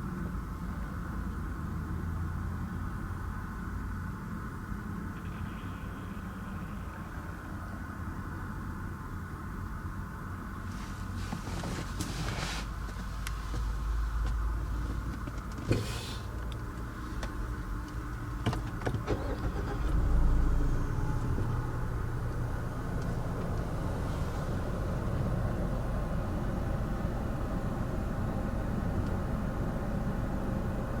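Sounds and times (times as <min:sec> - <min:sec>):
low cabin hum: 0:11.3 - 0:31.0.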